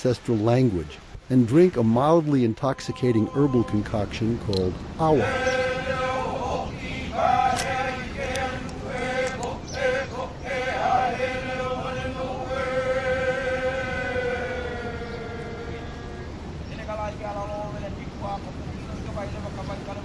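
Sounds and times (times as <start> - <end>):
group chanting in unison: 5.1 - 16.6.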